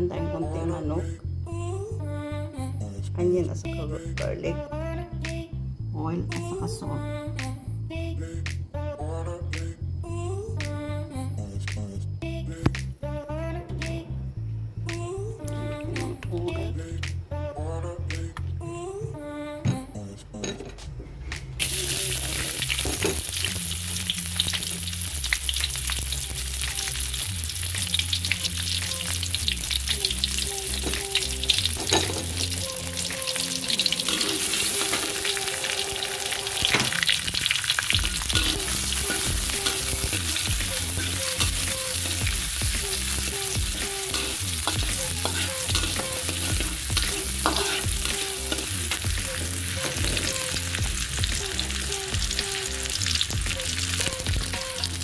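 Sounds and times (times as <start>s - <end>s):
onion sizzling in hot oil: 21.6s - 55.0s
metal spatula scraping wok: 33.3s - 41.6s, 44.0s - 50.3s.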